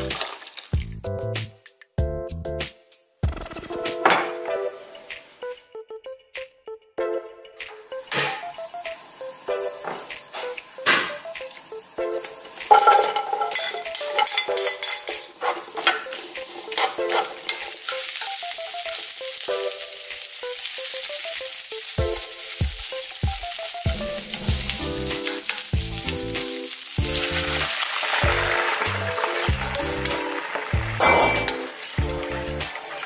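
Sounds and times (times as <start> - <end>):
vegetables clattering into pan: 0.0 - 0.9, 9.8 - 33.0
vegetables sizzling in oil: 0.0 - 0.9, 7.7 - 33.0.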